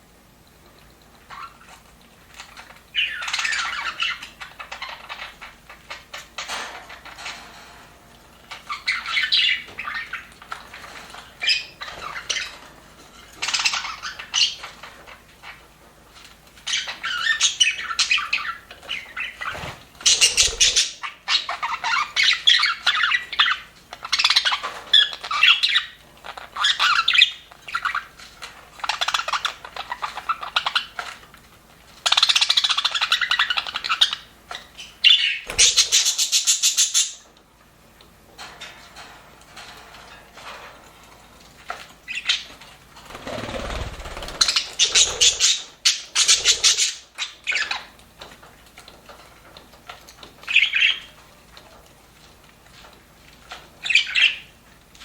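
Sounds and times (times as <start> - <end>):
budgerigars chattering: 20.1 - 23.6, 34.9 - 37.2, 43.6 - 47.8.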